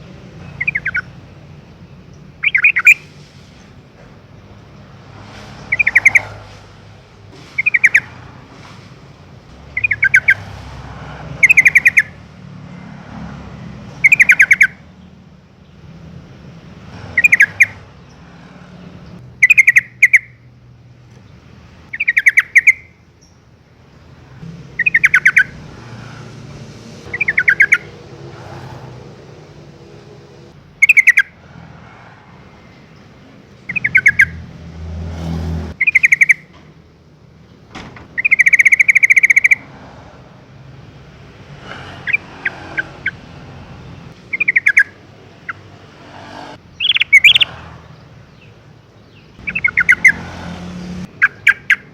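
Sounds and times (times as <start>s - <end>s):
bird chattering: 0.4s - 1.2s, 2.1s - 3.1s, 5.6s - 6.4s, 7.6s - 8.2s, 9.7s - 10.4s, 11.4s - 12.2s, 14.0s - 14.8s, 17.1s - 18.2s, 19.4s - 20.4s, 21.9s - 23.4s, 24.8s - 25.6s, 27.1s - 28.0s, 30.8s - 31.4s, 33.5s - 34.4s, 35.8s - 36.5s, 38.2s - 39.7s, 43.9s - 45.7s, 46.7s - 50.2s, 51.1s - 51.9s.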